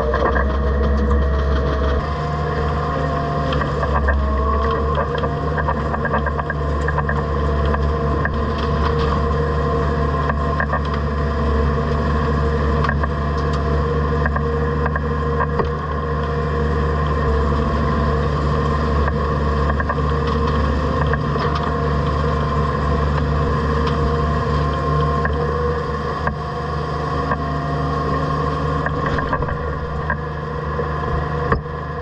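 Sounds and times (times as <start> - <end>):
bale processor shredding hay: 0.0 - 32.0
tractor engine running: 0.0 - 32.0
machine ticks and knocks: 4.9 - 8.7.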